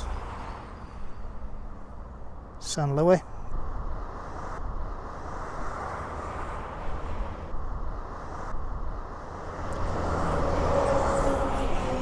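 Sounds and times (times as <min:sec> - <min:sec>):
road traffic noise: 0:00.0 - 0:12.0
vehicle passing: 0:03.8 - 0:12.0.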